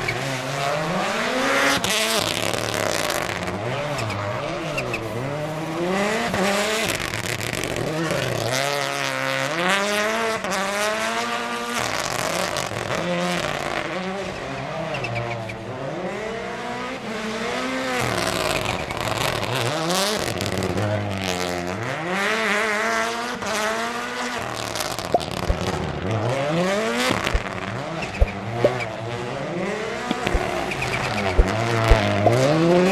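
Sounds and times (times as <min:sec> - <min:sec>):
sharp exhaust pops: 0:00.0 - 0:08.8, 0:24.4 - 0:26.0, 0:26.9 - 0:29.0, 0:30.0 - 0:32.9
rally car engine revving: 0:00.0 - 0:32.9.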